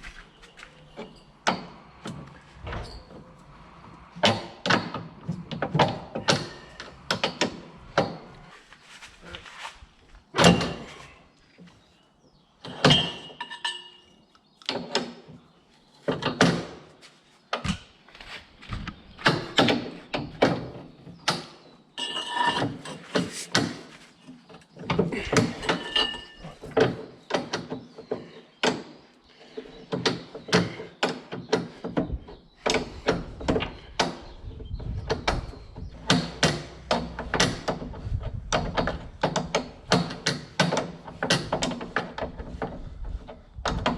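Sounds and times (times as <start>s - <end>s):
metallic knocks and clanks of tools: 12.7s - 15.4s, 21.3s - 23.8s, 24.8s - 28.9s, 35.1s - 43.9s.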